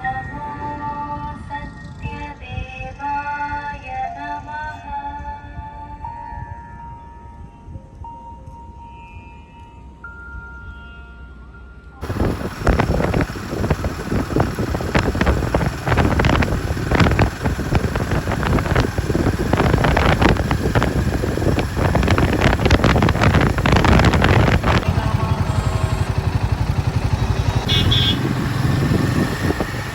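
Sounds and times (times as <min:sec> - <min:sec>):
motorcycle engine running: 0:12.0 - 0:29.9
wind buffeting microphone: 0:12.0 - 0:29.9.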